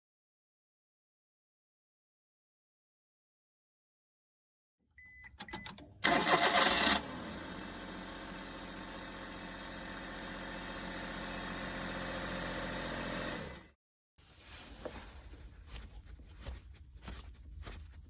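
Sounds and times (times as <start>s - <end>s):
short clicks and beeps: 5.0s - 6.3s
engine cranking: 5.6s - 7.1s.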